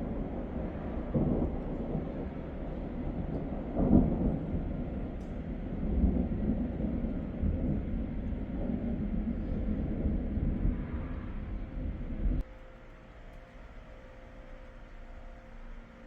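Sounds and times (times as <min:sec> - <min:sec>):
thunder rumbling: 0:00.0 - 0:12.5.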